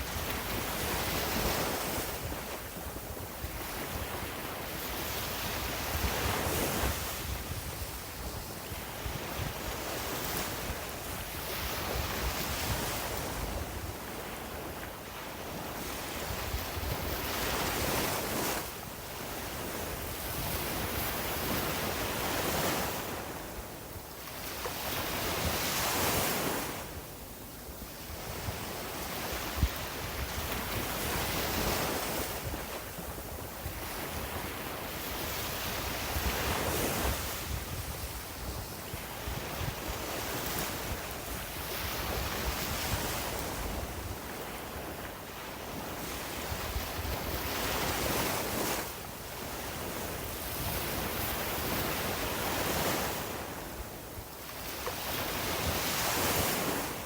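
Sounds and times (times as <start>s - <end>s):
wind rumbling on microphone: 0.0s - 57.0s.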